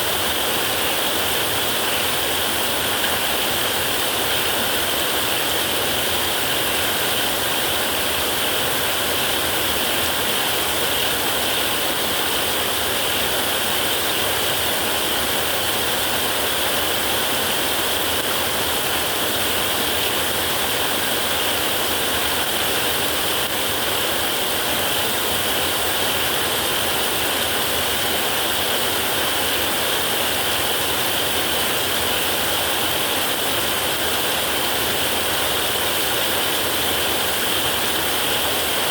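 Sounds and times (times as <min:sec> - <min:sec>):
heavy rain on a metal roof: 0:00.0 - 0:38.9.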